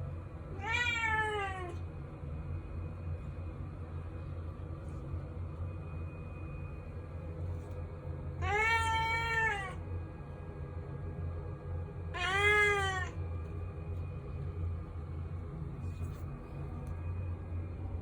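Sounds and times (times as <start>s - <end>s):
steady low hum: 0.0s - 18.0s
cat meowing: 0.6s - 1.8s, 8.4s - 9.8s, 12.1s - 13.2s.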